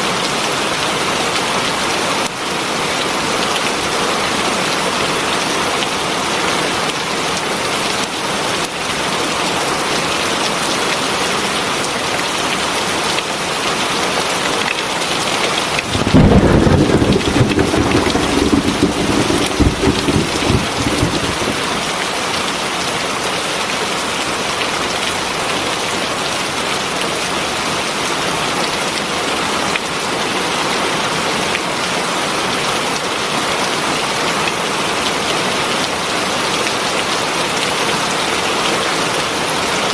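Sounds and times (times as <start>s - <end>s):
heavy rain falling: 15.7s - 22.6s
thunder clap and rumble: 15.8s - 22.2s.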